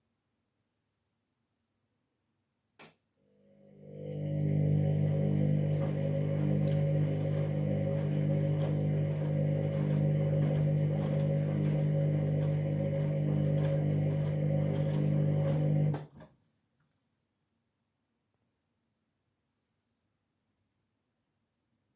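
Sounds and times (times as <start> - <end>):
washing machine humming: 3.5 - 16.2.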